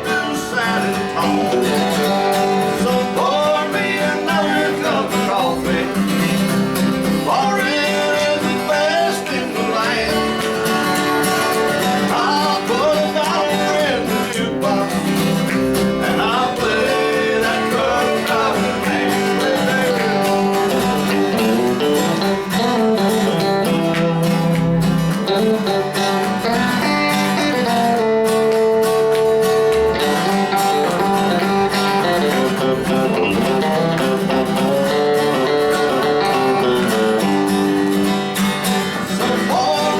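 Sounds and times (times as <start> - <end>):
person singing: 0.0 - 22.3, 39.2 - 39.9
guitar: 0.0 - 39.9
live country band: 0.0 - 39.9.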